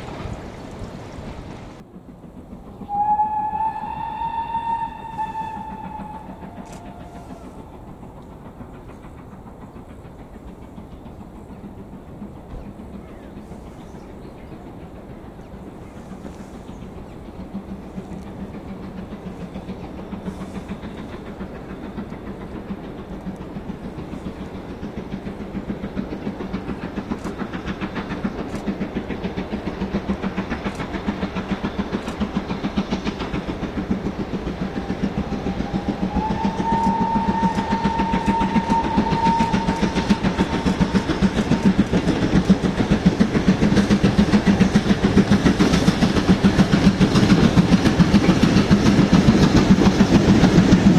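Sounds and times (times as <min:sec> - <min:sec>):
steam train running: 0:00.0 - 0:50.9
locomotive whistle long note: 0:02.8 - 0:07.8, 0:34.4 - 0:42.4.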